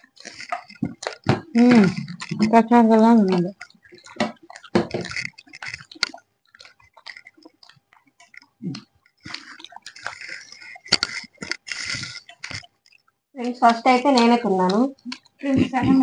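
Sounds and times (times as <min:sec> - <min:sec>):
people chewing crunchy food: 0:00.0 - 0:16.0.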